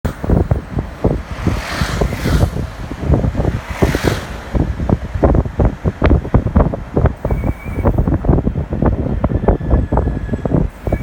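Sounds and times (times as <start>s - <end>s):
wind buffeting microphone: 0.0s - 11.0s
road hiss: 1.1s - 8.2s.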